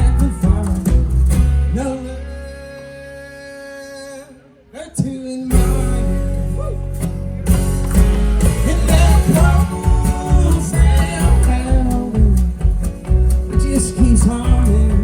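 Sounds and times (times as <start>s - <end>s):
bass and drums: 0.0s - 2.4s, 5.5s - 15.0s
person singing: 0.0s - 7.0s, 8.5s - 12.8s, 13.5s - 15.0s
live country band: 0.0s - 15.0s.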